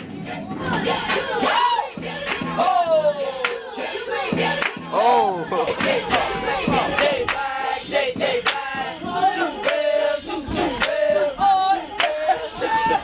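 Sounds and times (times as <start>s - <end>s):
music: 0.0s - 13.0s
young men shouting and chanting: 9.0s - 13.0s.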